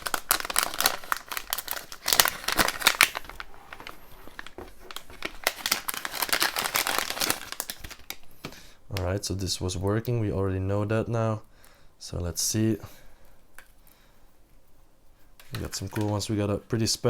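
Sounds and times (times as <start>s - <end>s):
plastic packaging crinkling: 0.0s - 9.1s, 15.4s - 16.3s.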